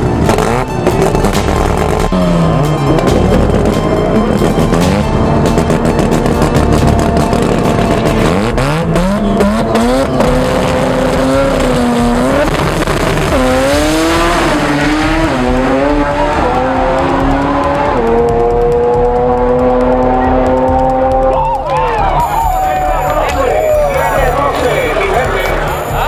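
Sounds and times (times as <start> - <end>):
drag car engine revving: 0.0 - 21.4
engine pops: 15.2 - 22.6.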